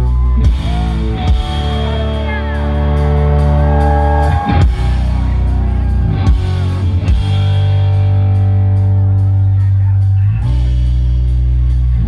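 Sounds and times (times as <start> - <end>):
rock band playing live: 0.0 - 12.0
drum hits: 4.4 - 8.1.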